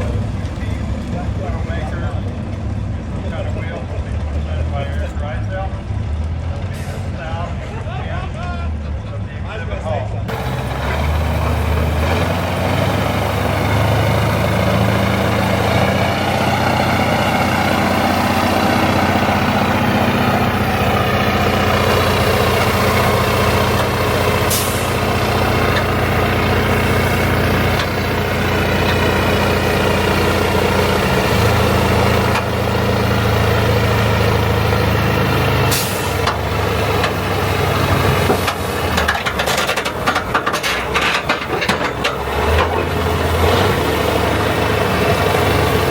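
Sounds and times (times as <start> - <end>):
truck engine running: 0.0 - 45.9
knocks and clanks: 20.2 - 32.9, 35.7 - 43.7.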